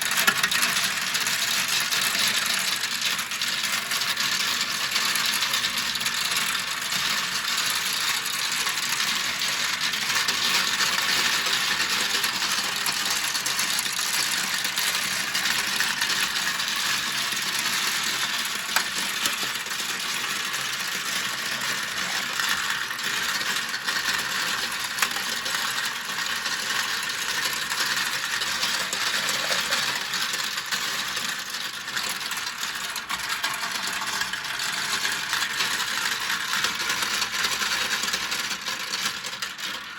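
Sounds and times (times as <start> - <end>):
marbles rattling down plastic run: 0.0 - 39.9.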